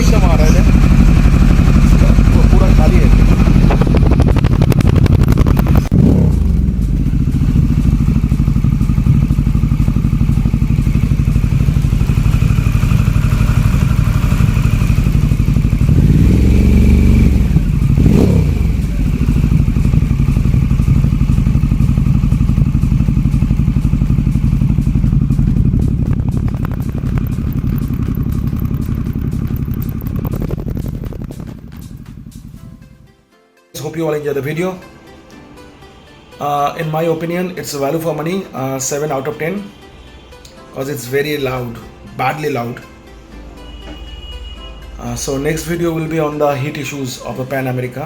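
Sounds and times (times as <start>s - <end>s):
motorcycle engine idling and revving: 0.0s - 33.1s.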